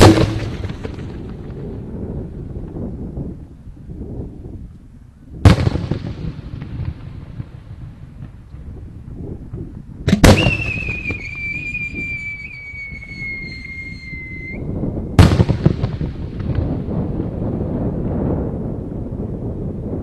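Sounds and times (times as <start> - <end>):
firework boom: 0.0 - 2.2, 10.1 - 12.0, 15.2 - 17.8
rumbling and crackle: 0.0 - 20.0
firework whistle falling: 10.2 - 14.7.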